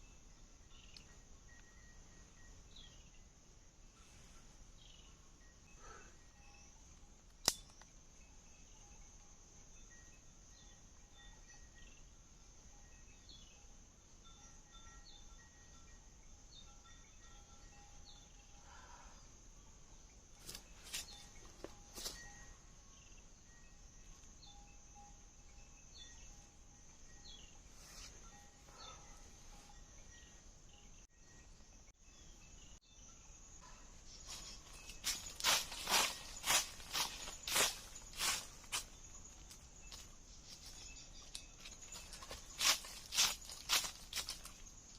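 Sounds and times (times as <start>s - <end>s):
bird chirps: 0.0s - 3.3s, 19.7s - 44.9s
insects droning: 0.0s - 44.9s
footsteps crunching dry leaves: 34.2s - 44.7s.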